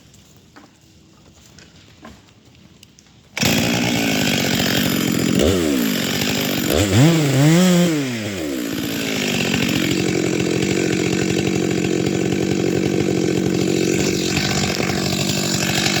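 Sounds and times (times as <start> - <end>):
chainsaw cutting wood: 3.4 - 16.0.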